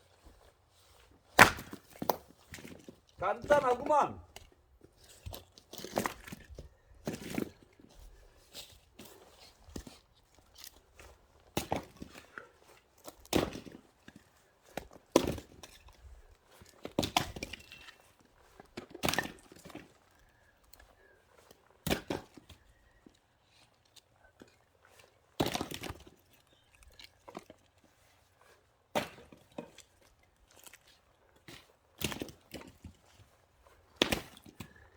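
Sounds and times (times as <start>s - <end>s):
axe splitting firewood: 1.3s - 2.8s, 13.1s - 13.9s, 18.8s - 20.0s, 21.8s - 22.5s, 28.9s - 29.9s, 33.9s - 34.8s.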